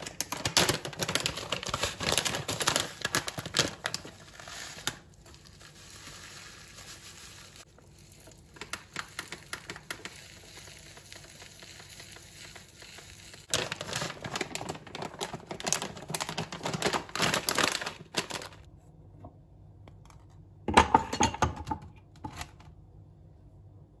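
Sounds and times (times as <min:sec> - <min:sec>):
crinkling and rustling: 0:00.0 - 0:10.2, 0:10.9 - 0:18.7.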